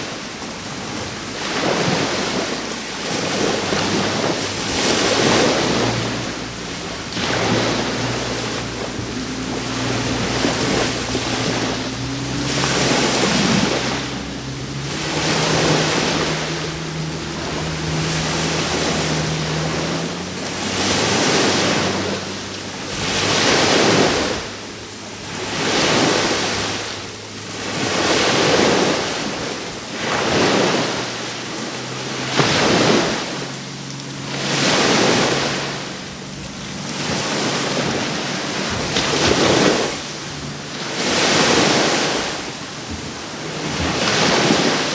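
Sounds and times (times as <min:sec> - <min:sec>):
surf breaking on shore: 0:00.0 - 0:44.9.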